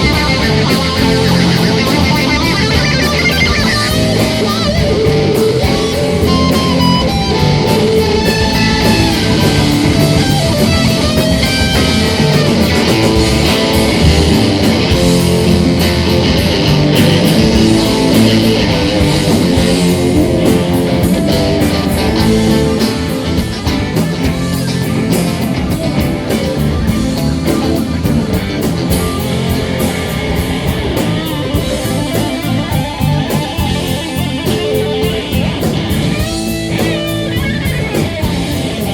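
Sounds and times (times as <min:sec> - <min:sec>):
drum kit: 0:00.0 - 0:38.9
guitar: 0:00.0 - 0:38.9
live rock band playing: 0:00.0 - 0:38.9.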